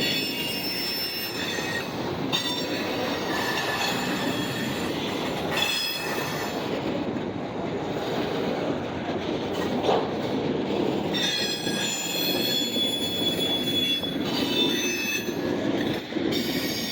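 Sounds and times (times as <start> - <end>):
freight train wheels rumbling: 0.0 - 16.9
wheel flanges squealing: 11.1 - 15.4.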